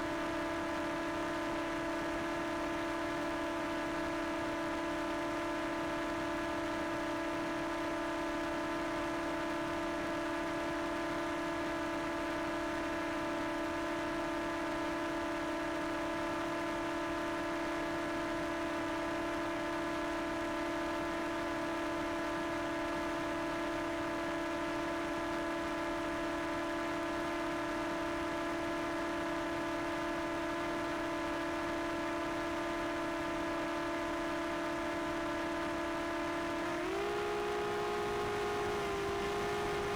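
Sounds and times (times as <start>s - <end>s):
drone propellers humming: 37.0s - 39.9s.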